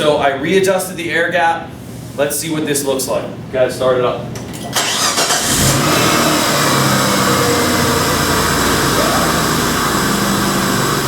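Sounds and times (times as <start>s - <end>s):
car engine cranking: 4.7s - 11.0s
car engine idling: 4.8s - 11.0s.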